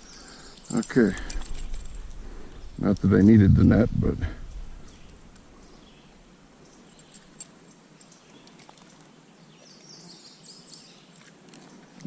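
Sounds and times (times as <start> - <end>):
low steady stream hiss: 0.0 - 12.0
bird chirping: 2.4 - 8.5.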